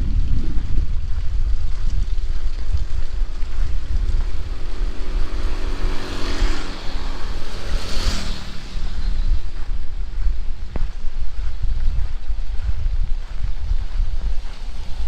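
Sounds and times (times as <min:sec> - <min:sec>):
vehicle engine hum: 0:00.0 - 0:15.0
wind rumble on microphone: 0:00.0 - 0:15.0
tyres hissing on wet road: 0:03.8 - 0:09.4, 0:14.4 - 0:15.0.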